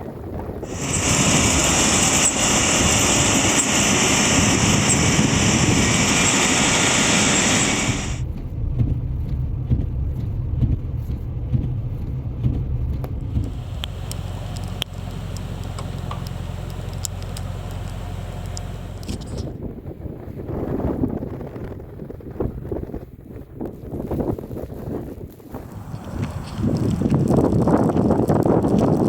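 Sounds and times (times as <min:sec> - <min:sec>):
low rumble: 0:00.4 - 0:22.9, 0:25.5 - 0:29.0
vehicle hissing rush: 0:00.6 - 0:08.2, 0:13.3 - 0:19.5, 0:25.5 - 0:27.7.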